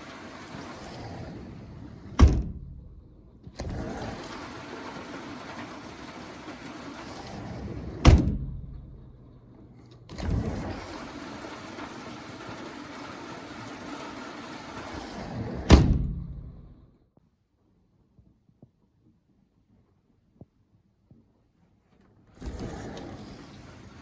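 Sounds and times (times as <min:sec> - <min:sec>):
rain on a metal patio cover: 0:00.0 - 0:01.0, 0:04.1 - 0:07.4, 0:10.6 - 0:15.3.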